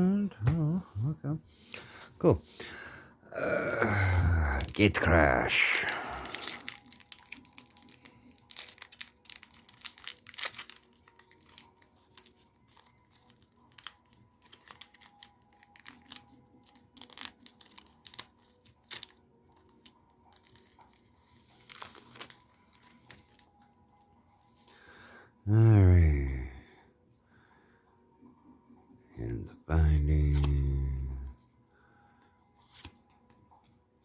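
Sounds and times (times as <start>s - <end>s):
plastic wrapper tearing and crinkling: 3.4s - 23.6s
cards being handled: 4.6s - 23.7s, 30.2s - 31.2s, 32.6s - 33.4s.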